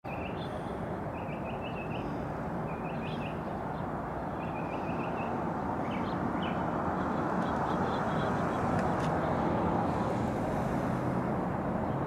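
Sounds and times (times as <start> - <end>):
small birds chirping: 0.1 - 9.5
outdoor background rumble: 0.1 - 12.0.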